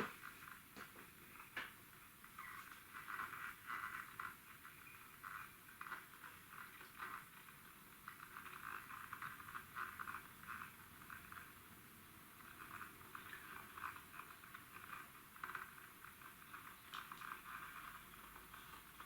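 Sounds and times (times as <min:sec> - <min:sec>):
kettle crackling hiss: 0:00.0 - 0:19.0.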